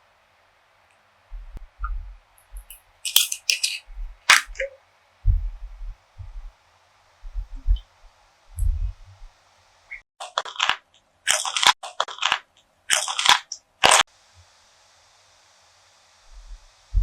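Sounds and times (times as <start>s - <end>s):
sharp clicks and crackles: 1.8s - 4.7s, 10.2s - 14.0s.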